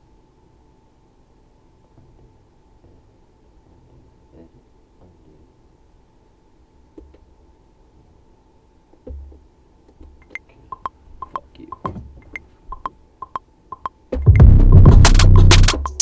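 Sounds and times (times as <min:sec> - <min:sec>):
soft pitched ticks: 0:10.2 - 0:14.4
loud electronic beat: 0:10.8 - 0:12.0, 0:12.8 - 0:16.0.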